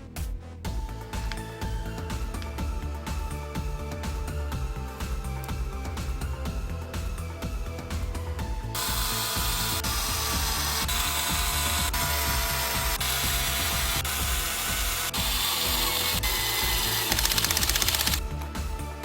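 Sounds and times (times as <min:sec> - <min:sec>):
background music: 0:00.0 - 0:19.0
power tool running: 0:08.7 - 0:18.2.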